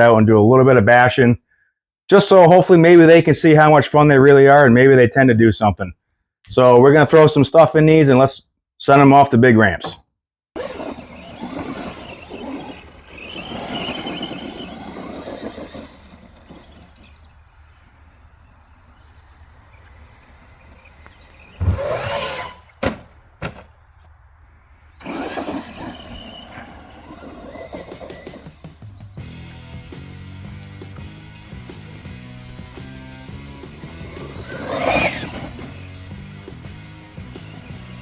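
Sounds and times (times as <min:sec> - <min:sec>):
electric motors whining: 0:10.6 - 0:38.0.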